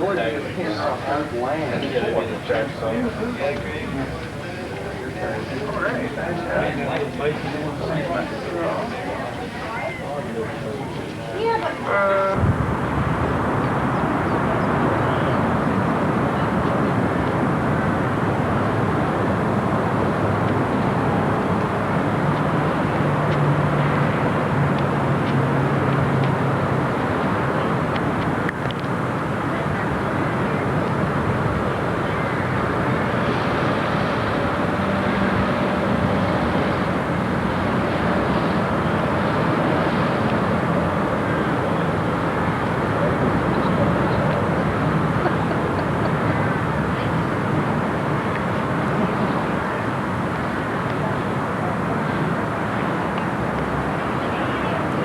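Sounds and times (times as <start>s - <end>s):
vehicle driving drone: 30.4s - 51.2s.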